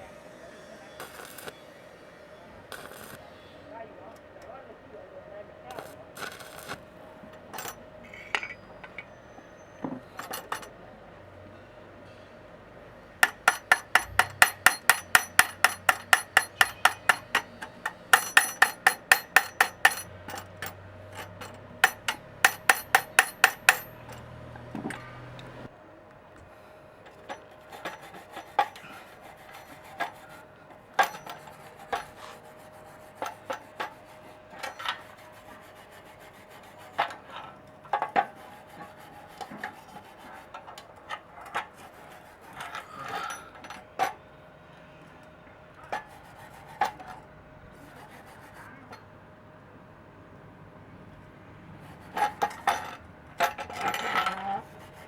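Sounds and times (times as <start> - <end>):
hammer tapping metal: 13.2 - 25.6, 31.0 - 32.5.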